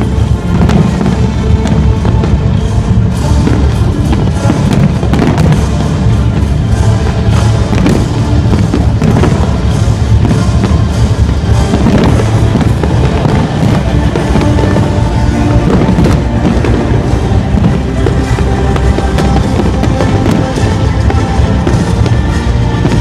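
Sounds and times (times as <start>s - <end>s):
fireworks bursting and popping: 0.0s - 23.0s
loud music with drums: 0.0s - 23.0s.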